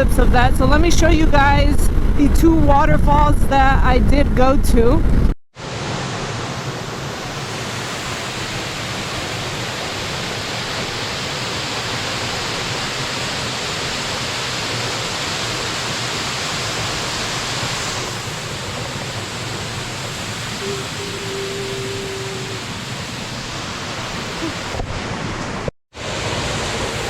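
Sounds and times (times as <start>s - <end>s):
waterfall rushing water: 5.6s - 27.0s.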